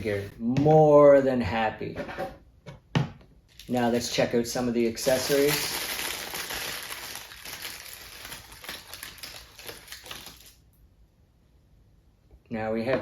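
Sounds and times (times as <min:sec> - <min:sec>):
plastic packaging crinkling: 0:03.5 - 0:04.2, 0:05.0 - 0:10.6.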